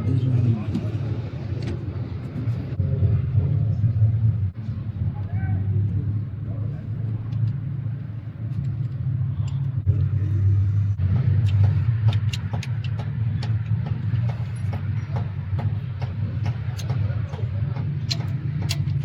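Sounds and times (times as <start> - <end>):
low machine hum: 0.0 - 19.0
sharp clicks and taps: 11.0 - 19.0.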